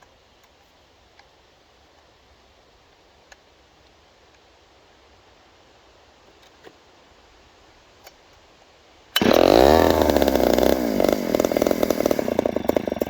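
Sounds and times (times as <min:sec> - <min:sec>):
chainsaw revving unevenly: 0:09.2 - 0:13.0.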